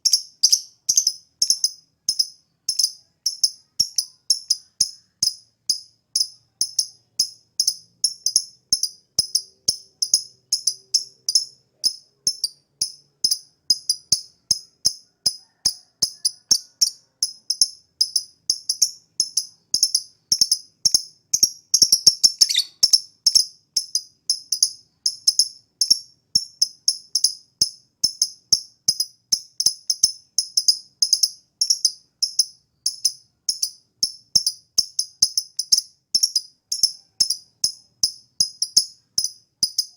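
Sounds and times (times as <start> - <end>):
lovebird chirping: 0.0 - 14.7, 15.6 - 26.5.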